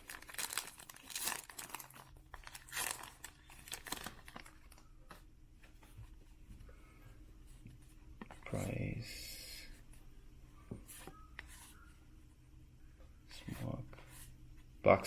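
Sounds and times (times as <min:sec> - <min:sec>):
wrapper tearing and crinkling: 0:00.0 - 0:04.8.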